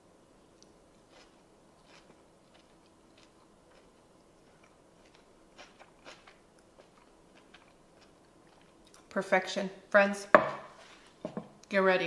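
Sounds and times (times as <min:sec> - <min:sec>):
person chewing food: 0:00.6 - 0:09.1.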